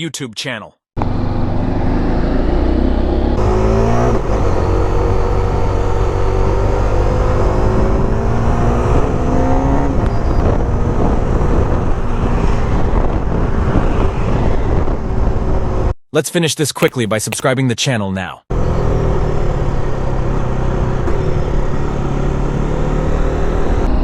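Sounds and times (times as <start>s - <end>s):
motorcycle engine accelerating: 1.0s - 15.9s, 18.5s - 24.0s.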